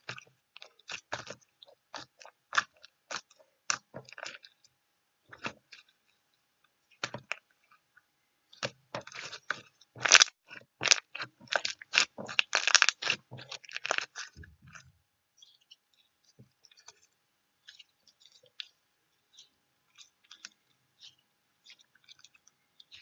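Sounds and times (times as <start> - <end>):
faint small clicks and ticks: 10.6 - 23.0.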